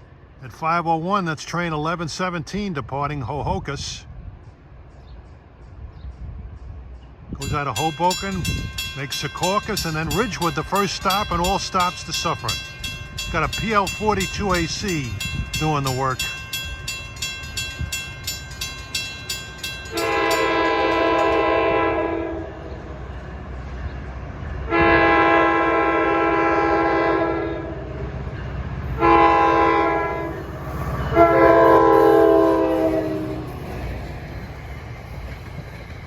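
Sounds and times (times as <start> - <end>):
crossing bell ringing: 7.4 - 22.0, 28.0 - 34.1
locomotive air horn blasts: 19.9 - 22.7, 24.7 - 27.9, 29.0 - 33.6.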